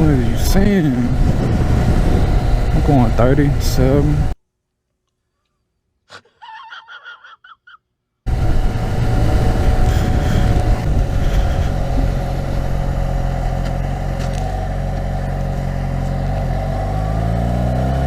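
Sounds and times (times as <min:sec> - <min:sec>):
motorcycle engine cruising: 0:00.0 - 0:04.4, 0:08.3 - 0:18.0
wind noise: 0:00.0 - 0:04.4, 0:08.3 - 0:14.5.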